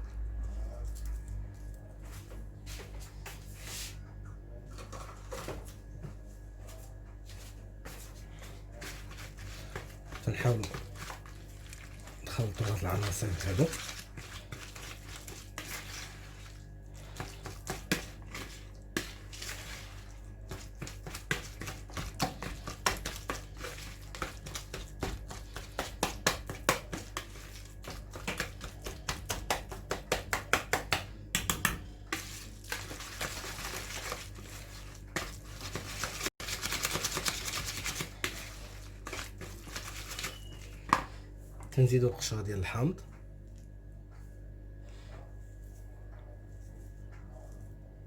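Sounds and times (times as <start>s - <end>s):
utensil scraping bowl: 8.8s - 29.5s, 32.1s - 41.0s.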